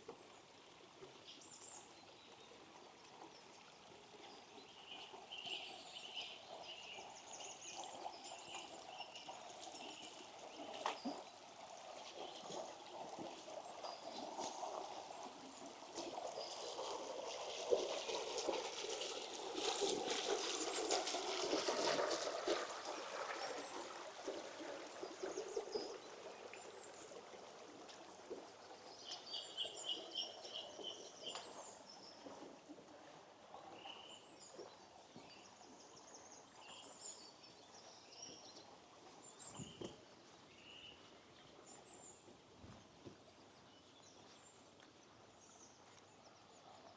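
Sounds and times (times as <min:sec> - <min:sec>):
stream trickling over stones: 0:00.0 - 0:42.4
small birds chirping: 0:28.8 - 0:32.3.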